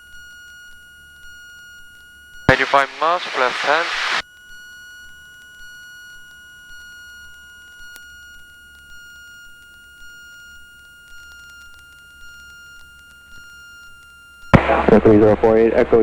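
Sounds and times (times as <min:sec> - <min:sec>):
high-pitched electrical whine: 0:02.5 - 0:04.2, 0:14.6 - 0:16.0.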